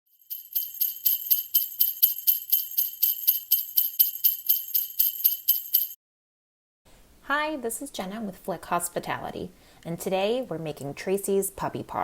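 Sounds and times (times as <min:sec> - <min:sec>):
jingle bells shaken: 0:00.1 - 0:06.0.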